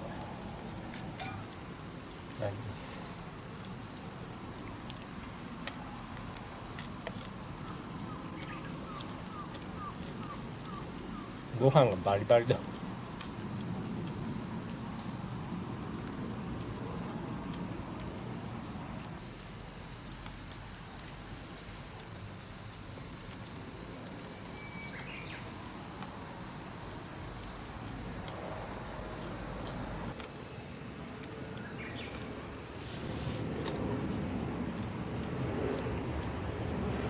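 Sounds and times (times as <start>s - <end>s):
insects singing: 0.0s - 37.0s.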